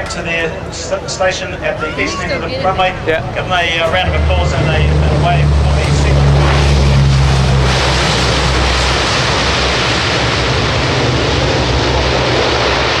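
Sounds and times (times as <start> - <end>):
turboprop engines rushing: 0.0 - 13.0.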